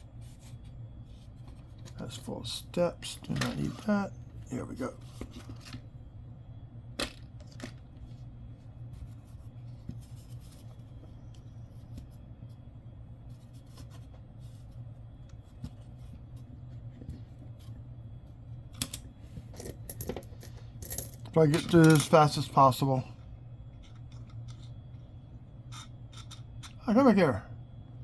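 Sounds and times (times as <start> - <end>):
steady low hum: 0.0 - 28.0
coins clicking and tapping: 18.8 - 19.0, 19.6 - 22.2.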